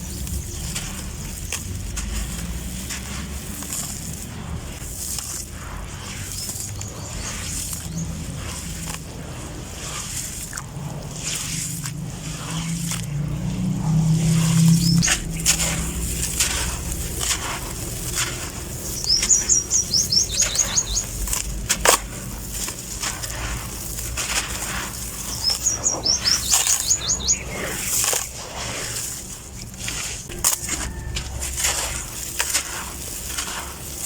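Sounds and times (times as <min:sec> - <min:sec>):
bird chirping: 0:00.0 - 0:01.8, 0:06.3 - 0:08.3, 0:12.5 - 0:21.7, 0:24.6 - 0:28.4
cement-sand crunching and crumbling: 0:00.0 - 0:34.0.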